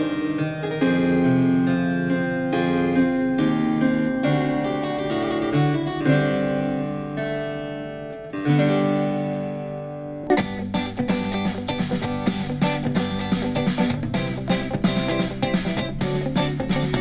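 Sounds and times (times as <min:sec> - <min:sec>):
harpsichord classical piece: 0:00.0 - 0:10.6
pop music with strummed guitar: 0:10.2 - 0:17.0.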